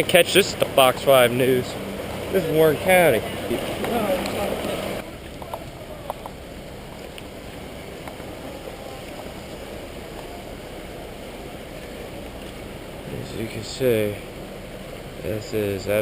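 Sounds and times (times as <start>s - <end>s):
flooded river rushing: 0.0s - 16.0s
faint clicks: 5.2s - 8.3s.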